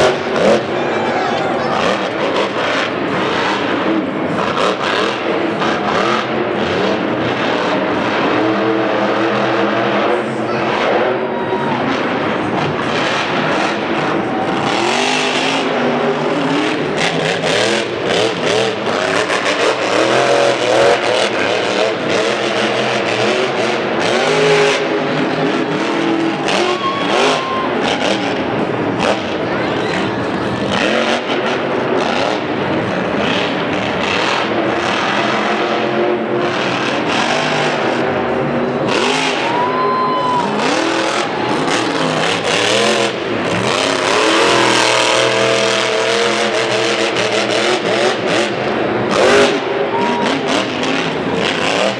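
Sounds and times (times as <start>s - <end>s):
monster truck engines revving: 0.0s - 51.9s.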